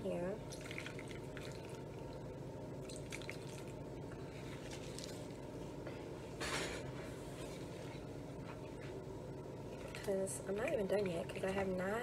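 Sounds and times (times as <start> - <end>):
low background hum: 0.0 - 12.0
water dripping into a bowl: 0.5 - 2.2, 2.8 - 3.8.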